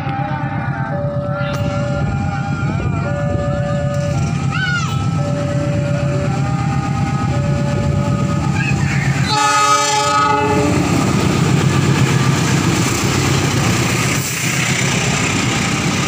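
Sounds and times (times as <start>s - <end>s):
diesel engine rumble: 0.0s - 16.0s
train wheels on rails: 0.0s - 16.0s
locomotive horn blast: 9.2s - 11.0s.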